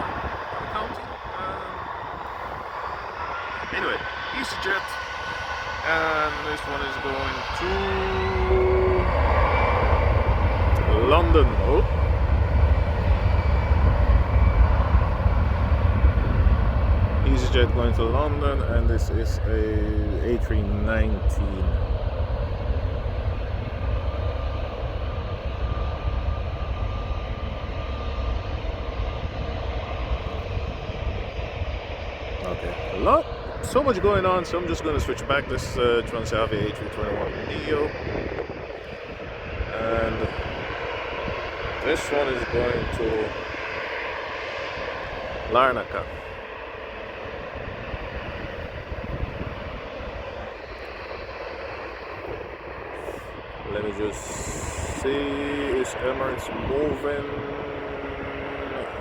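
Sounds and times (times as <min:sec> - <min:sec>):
jet engines rumbling: 0:00.0 - 0:59.0.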